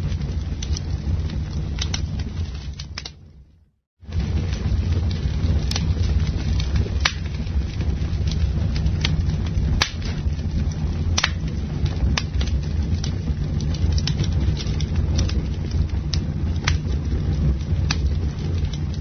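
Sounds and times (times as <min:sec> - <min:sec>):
campfire wood crackling and popping: 0:00.0 - 0:19.0.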